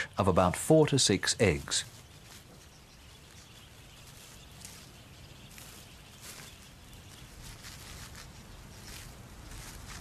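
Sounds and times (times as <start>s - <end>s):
high bird chirps: 1.7s - 9.0s.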